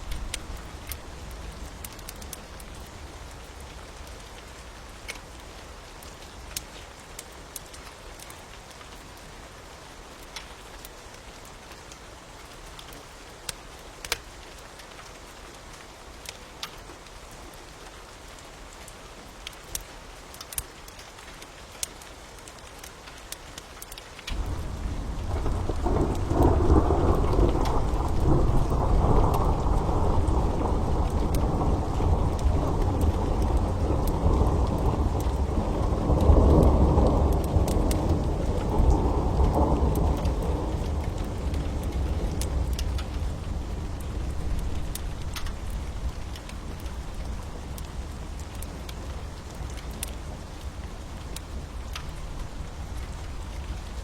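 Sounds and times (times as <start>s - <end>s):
fire crackling: 0.0s - 9.3s, 19.3s - 54.0s
steady rain falling: 0.0s - 54.0s
thunder rumbling: 24.3s - 48.2s.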